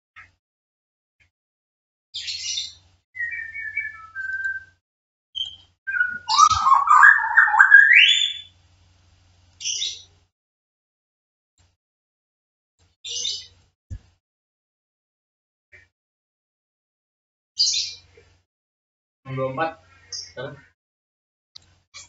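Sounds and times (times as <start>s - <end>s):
bird chirping: 2.2s - 4.8s, 5.4s - 8.5s, 9.6s - 10.1s, 13.1s - 13.6s, 17.6s - 18.1s, 20.0s - 20.7s
falling bird whistles: 3.2s - 4.8s, 5.4s - 8.5s
bird warbling call: 5.4s - 8.5s.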